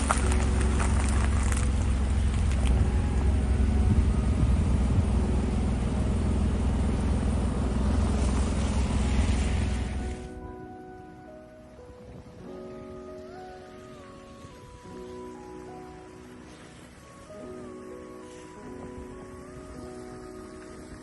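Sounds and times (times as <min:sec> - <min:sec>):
car engine and tyres rumbling: 0:00.0 - 0:10.4, 0:13.7 - 0:21.0
road noise: 0:00.0 - 0:21.0.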